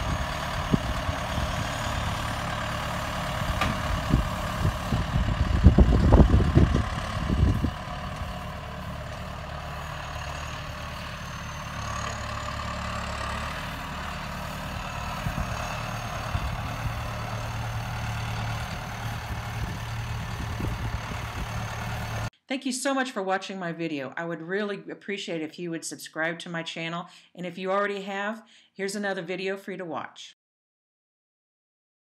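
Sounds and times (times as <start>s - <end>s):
loud irregular low rumbles: 0.0s - 22.3s
tractor engine running: 0.0s - 22.3s.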